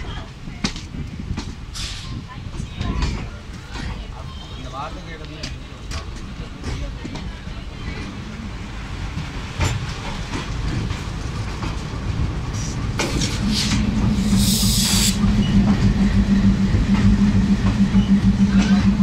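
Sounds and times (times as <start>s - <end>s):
train rolling over rails: 0.0s - 19.0s
brief hiss: 13.2s - 15.2s
steady low hum: 13.4s - 19.0s.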